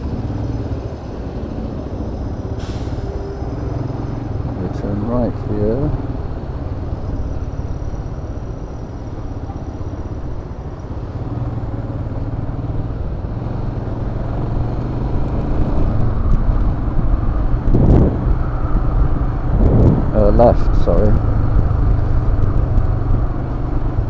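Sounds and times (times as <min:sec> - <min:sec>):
wind buffeting microphone: 0:15.7 - 0:24.0.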